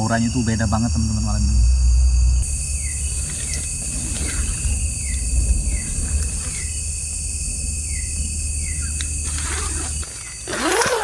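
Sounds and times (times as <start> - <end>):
low rumble: 0.0 - 10.0
crickets trilling: 0.0 - 11.0
falling cricket chirp: 0.0 - 11.0.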